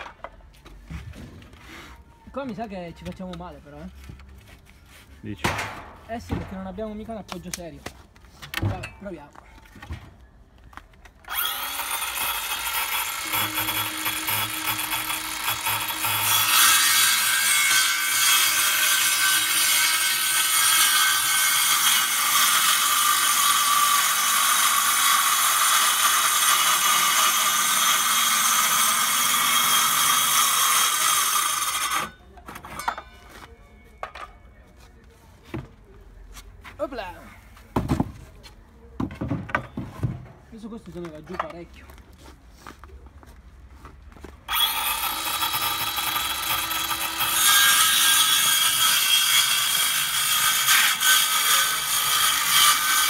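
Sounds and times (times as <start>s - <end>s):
circular saw cutting board: 11.3s - 32.1s.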